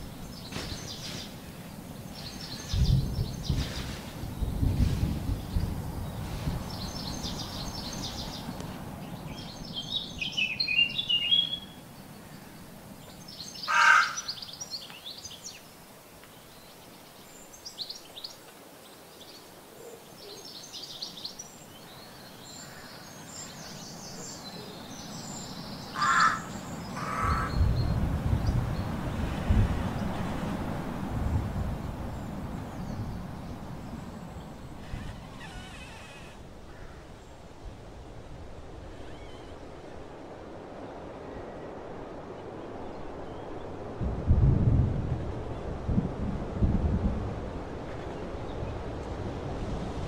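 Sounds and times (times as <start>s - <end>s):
birds chirping and trilling: 0.0s - 30.9s, 31.8s - 37.6s, 38.6s - 40.2s
harsh bird call: 13.6s - 14.5s, 25.9s - 27.7s, 34.6s - 37.1s.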